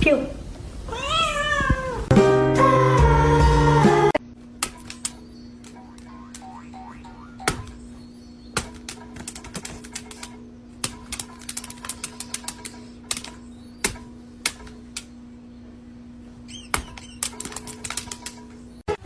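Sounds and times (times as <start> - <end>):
steady low hum: 4.2 - 19.0.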